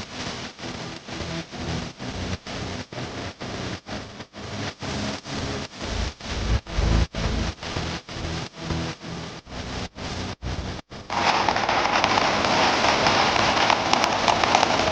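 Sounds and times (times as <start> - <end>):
firework bangers exploding: 11.2 - 14.9.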